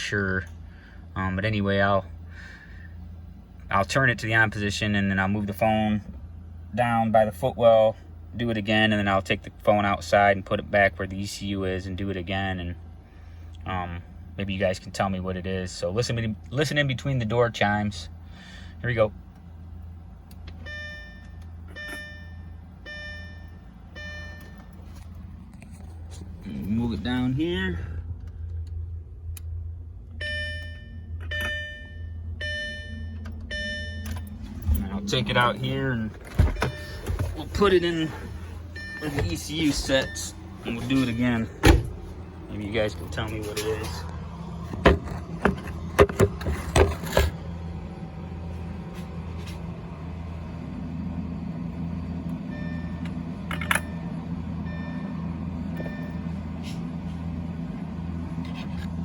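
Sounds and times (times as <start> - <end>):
steady low hum: 0.0 - 59.0
car door warning chime: 20.7 - 24.7, 30.2 - 34.4, 36.2 - 37.8, 38.8 - 41.1
faint on-off tones: 26.6 - 44.7.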